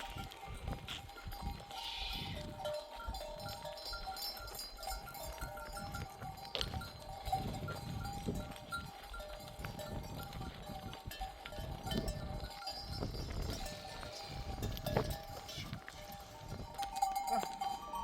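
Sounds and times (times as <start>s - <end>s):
neck bells clanking: 11.1s - 18.0s.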